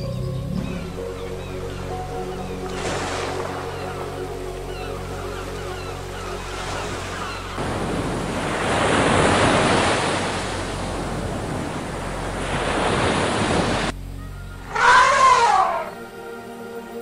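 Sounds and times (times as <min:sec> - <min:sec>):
soft music: 0:00.0 - 0:08.1, 0:13.9 - 0:17.0
surf washing over beach: 0:06.2 - 0:14.0
animal call rising and falling: 0:14.2 - 0:16.1.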